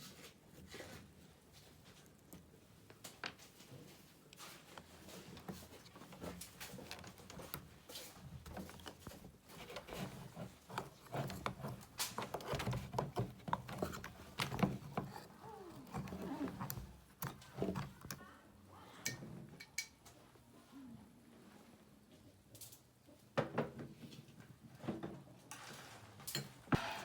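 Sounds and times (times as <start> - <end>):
light clicks and knocks: 2.3 - 18.2.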